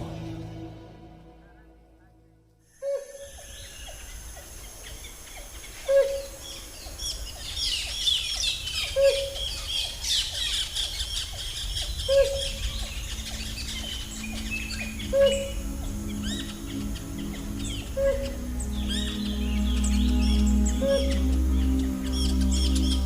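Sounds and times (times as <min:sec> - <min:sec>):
low steady hum: 0:00.0 - 0:23.0
birds chirping and whistling: 0:02.8 - 0:23.0
low hooting note: 0:12.0 - 0:23.0.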